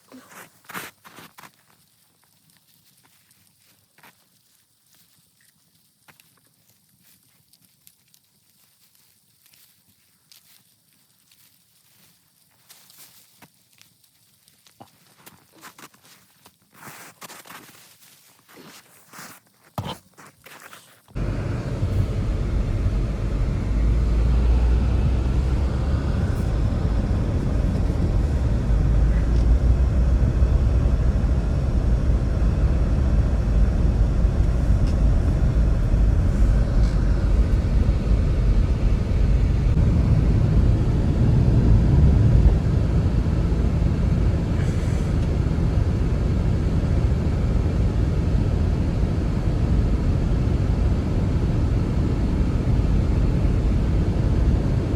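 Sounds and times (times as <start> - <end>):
blizzard wind roaring: 21.2 - 54.9.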